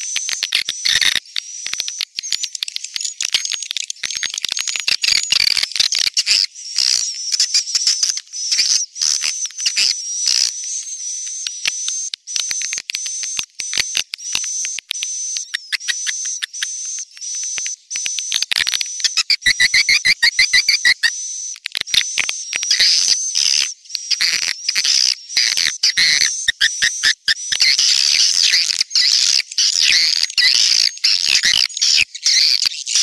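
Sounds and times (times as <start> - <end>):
swiftlet chirps and twitters: 6.2 - 21.6.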